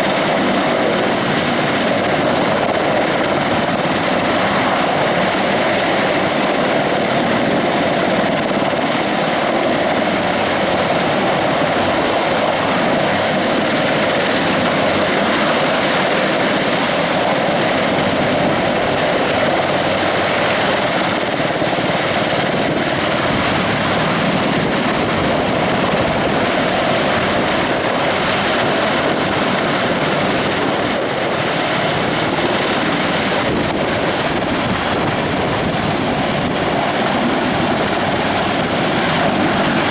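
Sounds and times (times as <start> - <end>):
helicopter turbine and rotor noise: 0.0 - 39.9.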